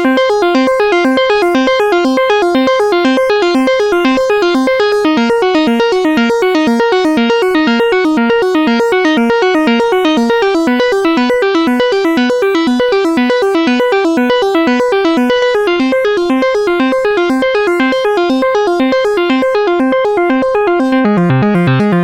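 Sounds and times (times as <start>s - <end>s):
electronic keyboard arpeggio: 0.0s - 22.0s.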